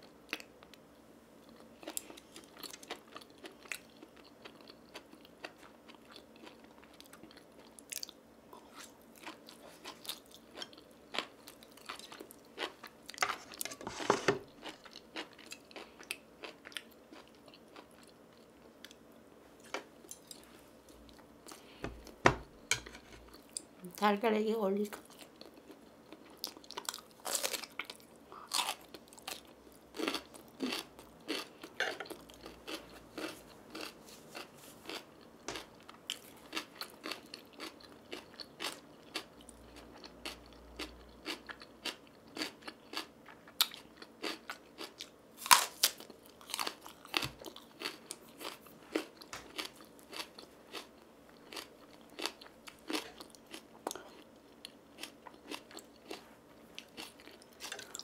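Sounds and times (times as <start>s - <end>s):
crisp crunches and chewing: 25.0s - 58.0s.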